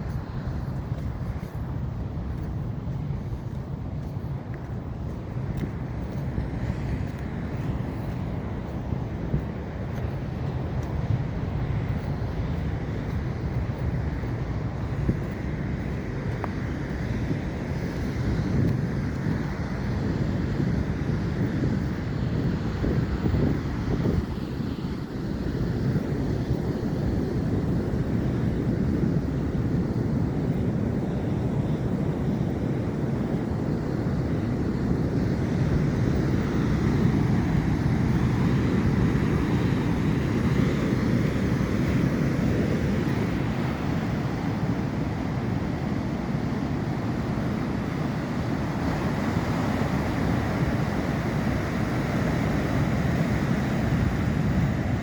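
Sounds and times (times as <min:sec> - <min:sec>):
ocean surf rushing: 0:00.0 - 0:55.0
wind rumble on microphone: 0:00.0 - 0:55.0.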